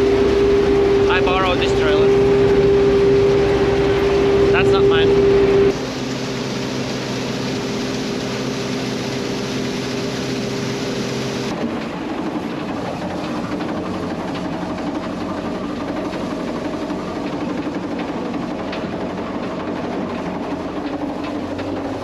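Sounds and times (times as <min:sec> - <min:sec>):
farm machinery engine running: 0:00.0 - 0:22.0.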